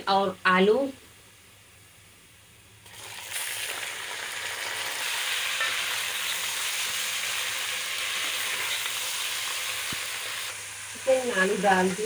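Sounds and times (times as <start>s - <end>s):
food sizzling in hot oil: 2.3s - 12.0s.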